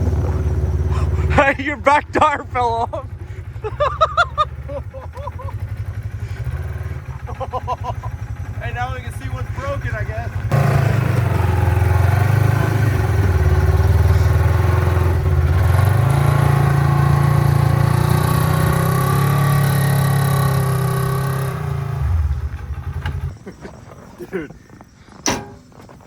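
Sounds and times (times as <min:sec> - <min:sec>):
vehicle engine humming: 0:00.0 - 0:23.4.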